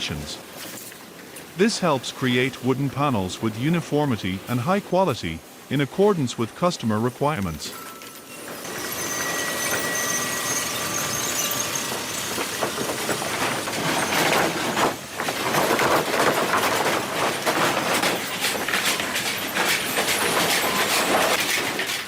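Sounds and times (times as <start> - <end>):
sawmill machinery running: 1.5 - 22.0
lumber and metal clattering: 7.7 - 22.0.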